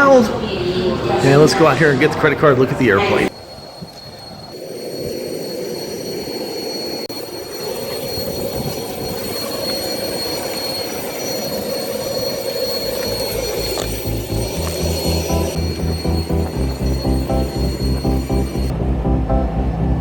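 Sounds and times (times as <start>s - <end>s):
high steady whine: 3.3s - 20.0s
turbine engine roaring: 4.5s - 20.0s
background music with a beat: 14.0s - 19.6s.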